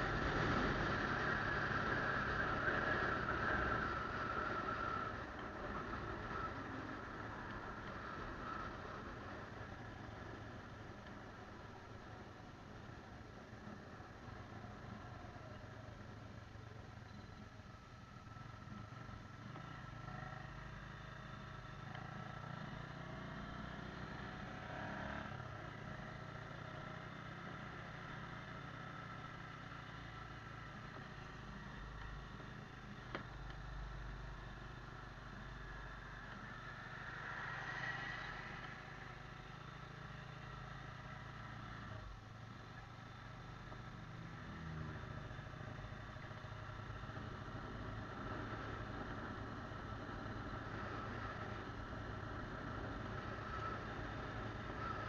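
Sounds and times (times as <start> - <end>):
road noise: 0.0 - 55.0
motorcycle engine running: 38.2 - 55.0.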